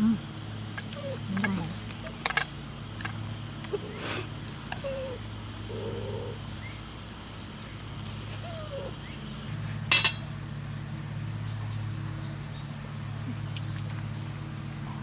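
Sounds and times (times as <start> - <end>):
steady low hum: 0.0 - 15.0
dog whining: 0.8 - 2.4, 3.7 - 6.5, 8.2 - 9.2
dishes clinking: 9.9 - 10.3.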